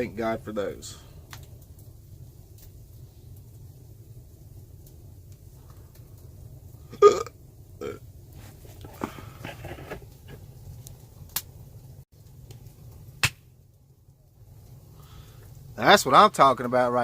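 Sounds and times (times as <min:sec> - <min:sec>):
campfire wood cracking: 0:00.0 - 0:17.0
man burping: 0:06.9 - 0:08.0.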